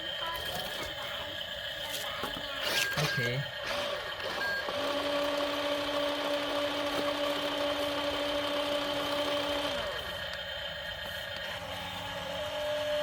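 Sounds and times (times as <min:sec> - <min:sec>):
small electric motor whining: 0:00.0 - 0:13.0.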